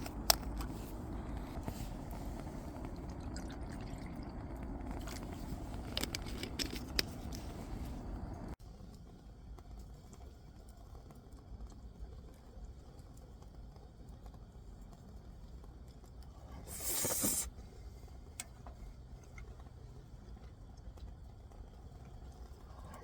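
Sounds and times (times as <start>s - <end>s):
low steady rumble: 0.0s - 23.0s
wood fire crackling: 0.0s - 23.0s
short loud hiss: 16.7s - 17.5s.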